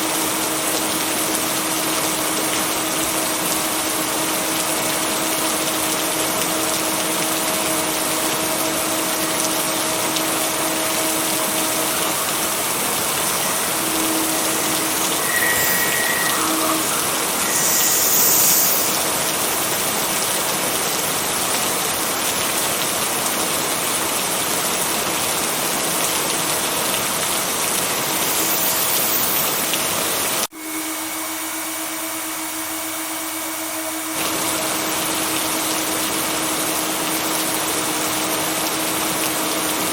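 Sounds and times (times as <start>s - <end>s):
heavy rain hiss: 0.0s - 30.5s.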